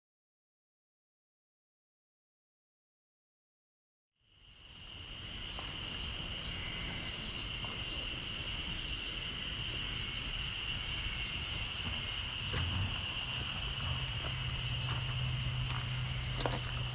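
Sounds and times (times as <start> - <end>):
insect chorus drone: 4.2 - 16.9
low outdoor rumble: 4.5 - 16.9.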